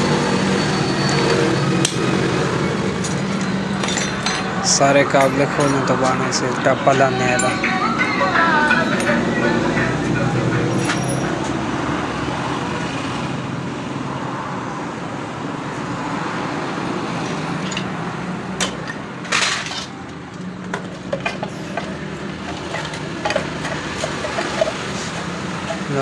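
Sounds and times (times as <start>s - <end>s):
road traffic drone: 0.0s - 26.0s.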